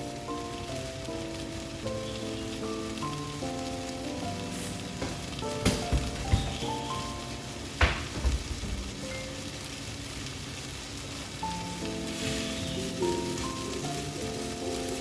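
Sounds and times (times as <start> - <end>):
chicken sizzling in a frying pan: 0.0 - 15.0
soft background music: 0.0 - 15.0
sharp knock: 5.0 - 6.7.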